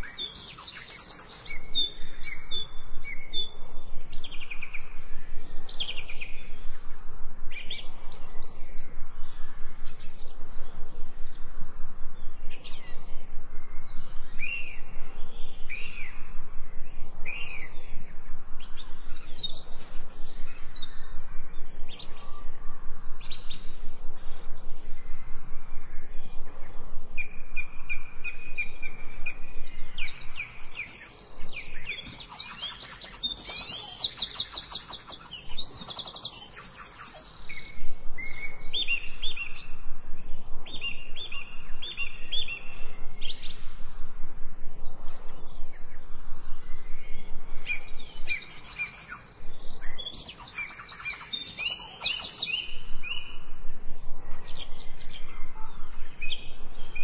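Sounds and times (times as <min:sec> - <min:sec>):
songbirds singing and chirping: 0:00.0 - 0:57.0.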